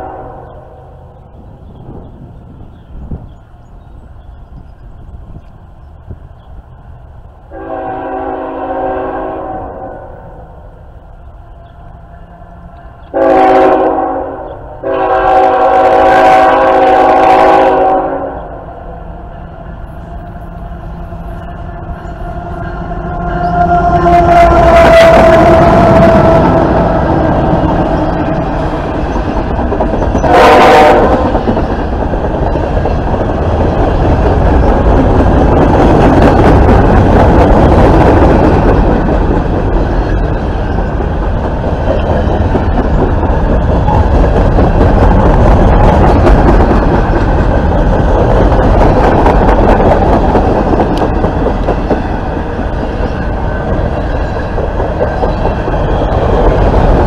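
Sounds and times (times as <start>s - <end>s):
train horn blast: 0.0s - 1.1s, 7.5s - 10.5s, 12.2s - 18.8s, 21.5s - 28.7s, 30.2s - 31.5s
freight train rumbling past: 0.0s - 57.0s
wheels clattering over rails: 31.0s - 57.0s.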